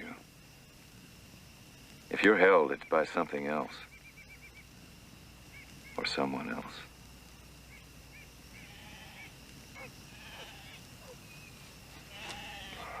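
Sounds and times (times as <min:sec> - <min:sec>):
faint bird chirps: 0:02.5 - 0:06.9, 0:07.5 - 0:13.0.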